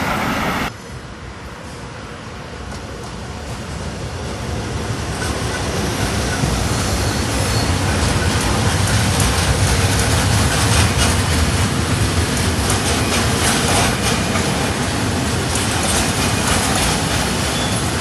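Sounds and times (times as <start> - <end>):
train passing: 0.0 - 18.0
wheels clacking over rail joints: 5.1 - 18.0.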